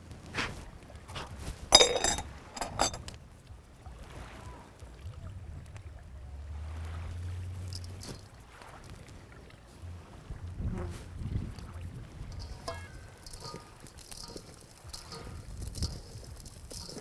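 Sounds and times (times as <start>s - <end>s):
cookware clinking: 1.7s - 3.1s, 12.3s - 17.0s
low steady rumble: 4.8s - 17.0s.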